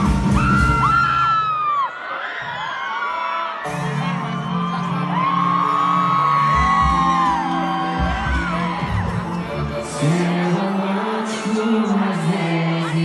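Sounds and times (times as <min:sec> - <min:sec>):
live band music: 0:00.0 - 0:01.2, 0:03.7 - 0:10.4
crowd whooping: 0:00.0 - 0:13.0
crowd singing along: 0:08.0 - 0:13.0.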